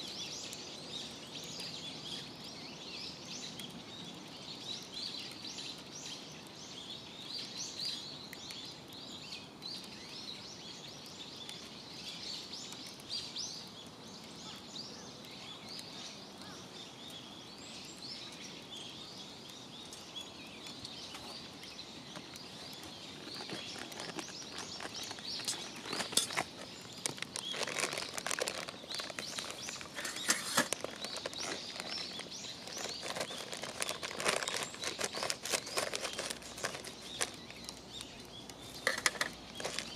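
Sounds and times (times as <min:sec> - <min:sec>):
campfire crackling and popping: 0:00.0 - 0:39.9
small birds chirping: 0:00.0 - 0:39.9.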